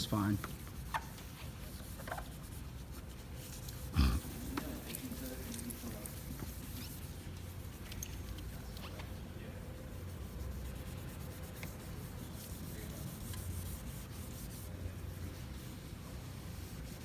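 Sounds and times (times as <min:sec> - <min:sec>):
sandpaper rubbing on plastic: 0:00.0 - 0:03.9, 0:05.8 - 0:07.9, 0:09.7 - 0:17.0.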